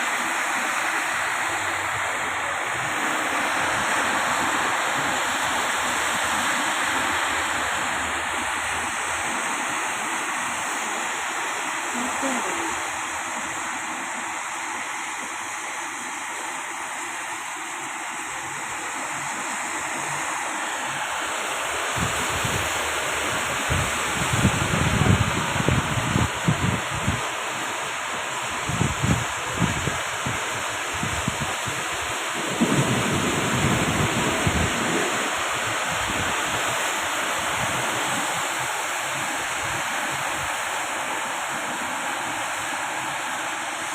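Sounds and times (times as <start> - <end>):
heavy rain hissing: 0.0 - 43.9
wind buffeting microphone: 21.9 - 27.2, 28.6 - 31.8, 32.5 - 36.6.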